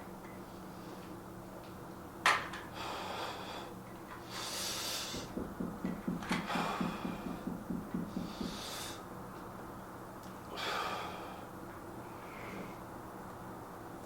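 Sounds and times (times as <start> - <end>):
hard exhaling breaths: 8.1 - 9.0.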